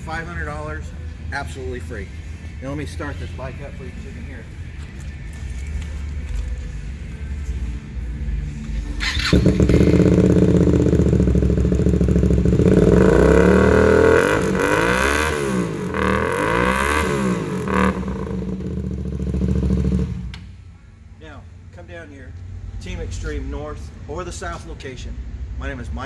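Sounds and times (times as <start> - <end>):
motorcycle engine starting and idling: 8.5 - 20.6
motorcycle engine revving: 8.7 - 20.5.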